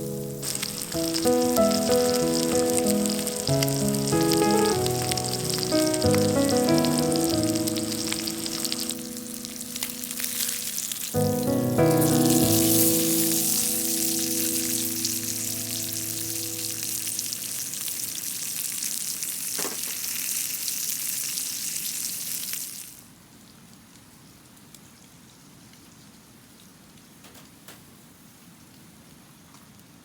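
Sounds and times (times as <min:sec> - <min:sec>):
background music: 0:00.0 - 0:17.7
food sizzling in a pan: 0:00.0 - 0:23.0
faint hiss: 0:00.0 - 0:23.2.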